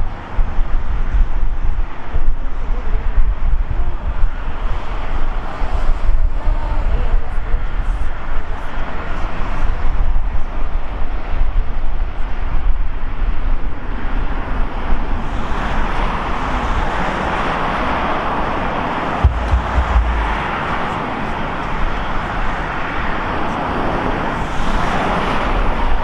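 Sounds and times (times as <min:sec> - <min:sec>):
wind gusting on microphone: 0:00.0 - 0:26.0
vehicle roar: 0:16.2 - 0:23.8.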